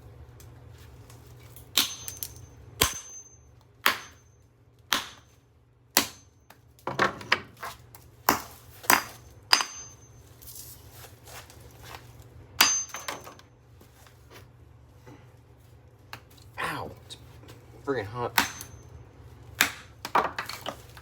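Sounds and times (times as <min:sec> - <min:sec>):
hammer striking metal motor: 0:01.8 - 0:04.3, 0:08.9 - 0:10.1, 0:12.6 - 0:13.3, 0:18.4 - 0:18.9.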